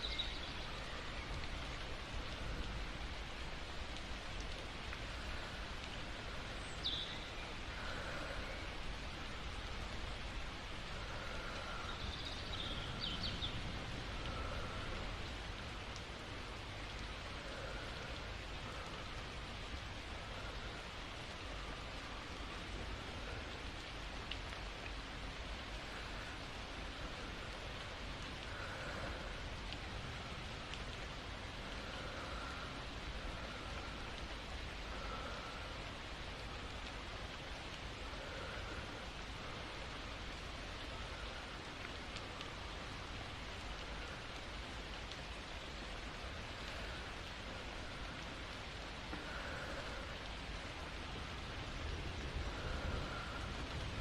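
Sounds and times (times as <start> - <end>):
soft slow breathing: 0.0 - 54.0
steady rain: 0.0 - 54.0.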